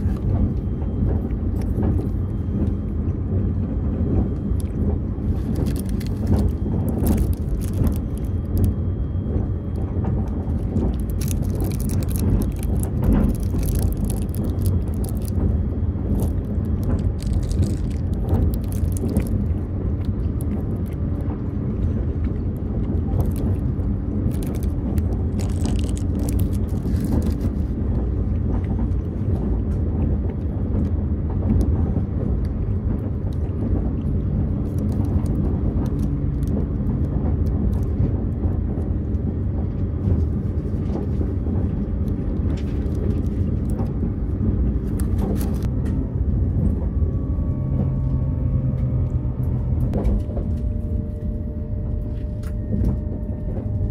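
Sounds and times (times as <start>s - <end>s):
train cabin rumble: 0.0s - 53.9s
food packaging crinkling: 5.3s - 8.7s, 10.4s - 20.9s, 23.1s - 27.7s.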